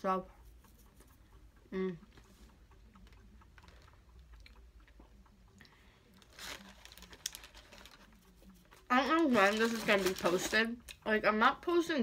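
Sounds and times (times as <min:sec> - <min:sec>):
faint chewing: 0:00.2 - 0:11.2
wet mouth clicks: 0:00.4 - 0:06.3.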